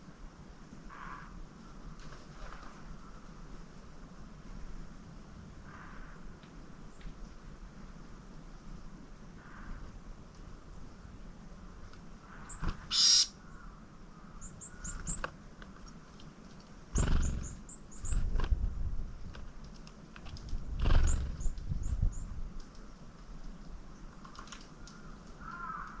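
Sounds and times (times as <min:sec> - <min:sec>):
small birds calling: 0:12.2 - 0:16.0, 0:16.9 - 0:18.3, 0:20.7 - 0:22.4
harsh bird call: 0:12.4 - 0:13.6.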